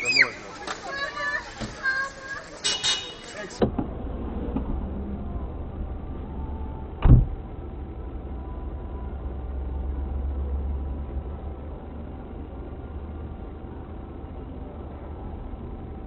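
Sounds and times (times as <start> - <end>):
car engine rumble: 0.0 - 16.0
road noise: 0.0 - 16.0
sharp thump: 7.0 - 7.4.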